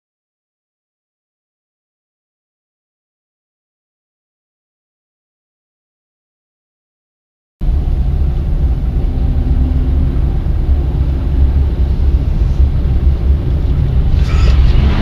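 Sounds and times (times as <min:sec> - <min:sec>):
car engine and road noise: 0:07.6 - 0:15.0.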